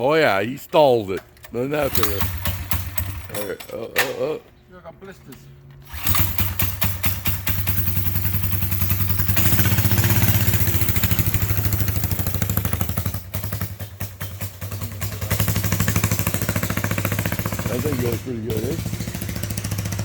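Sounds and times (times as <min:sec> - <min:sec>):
small gas engine revving: 0:01.8 - 0:03.4, 0:05.9 - 0:20.0.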